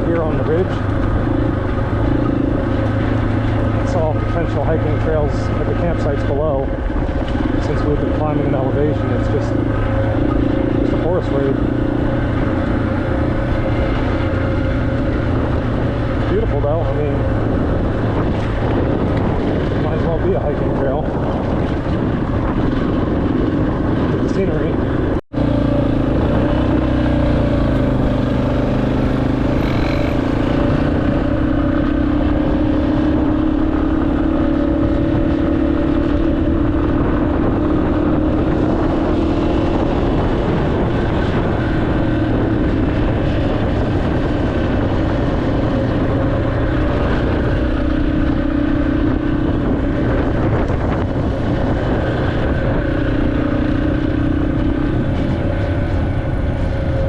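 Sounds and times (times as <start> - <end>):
motorcycle engine running: 0.0 - 57.0
wind: 0.0 - 57.0.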